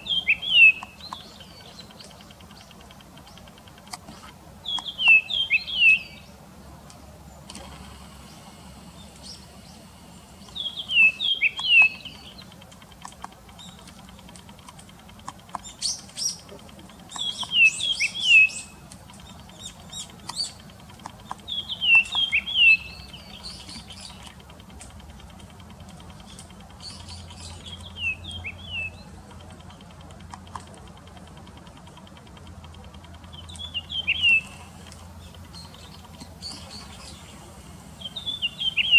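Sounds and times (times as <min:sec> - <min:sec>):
thin high chirps: 0:10.4 - 0:12.6, 0:15.5 - 0:24.4, 0:33.3 - 0:38.9.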